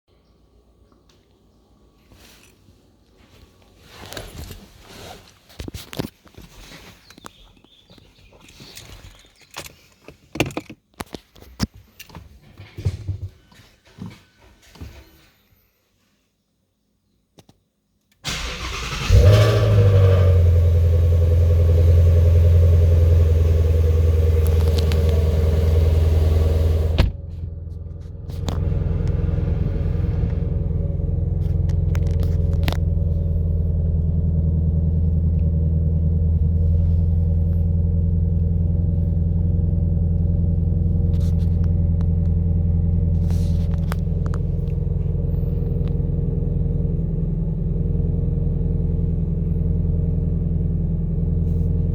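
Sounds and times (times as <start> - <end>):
car engine cranking and idling: 18.2 - 51.9.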